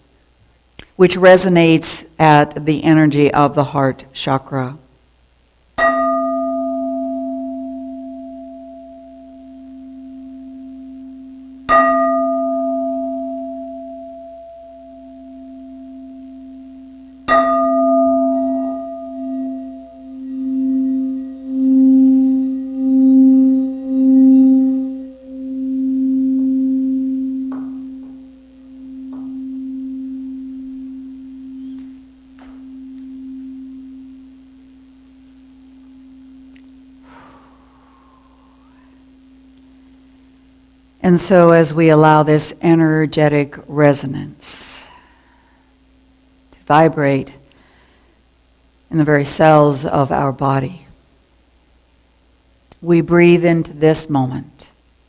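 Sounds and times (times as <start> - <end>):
singing bowl strike: 5.8 - 40.4
singing bowl ringing: 5.8 - 40.6.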